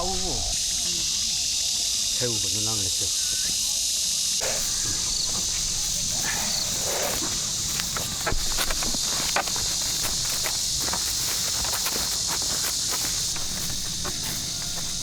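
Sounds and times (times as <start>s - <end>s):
insect chorus drone: 0.0s - 15.0s
rustling: 4.4s - 15.0s.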